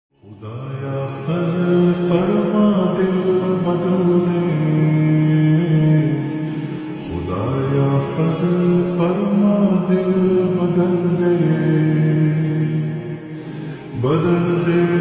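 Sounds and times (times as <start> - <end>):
person singing slow devotional melody: 0.2 - 15.0.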